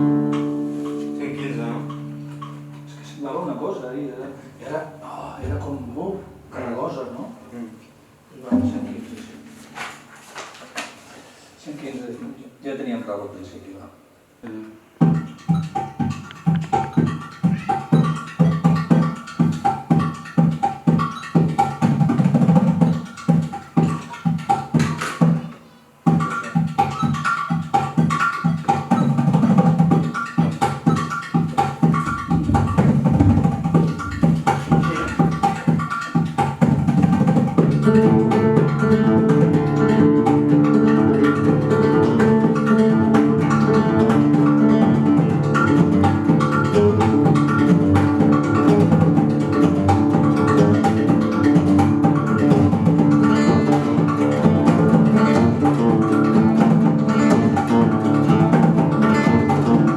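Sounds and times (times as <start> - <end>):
plucked string music: 0.0 - 6.5, 15.0 - 25.5, 26.1 - 59.9
light percussion: 15.0 - 59.9.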